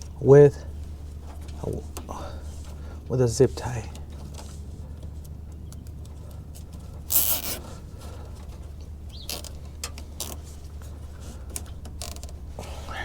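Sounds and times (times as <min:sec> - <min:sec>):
zip tie rasping: 0:07.1 - 0:07.8.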